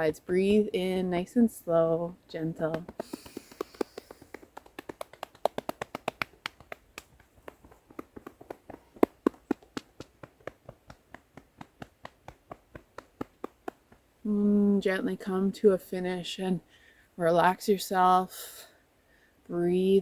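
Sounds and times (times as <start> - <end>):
hands patting body: 2.6 - 14.1.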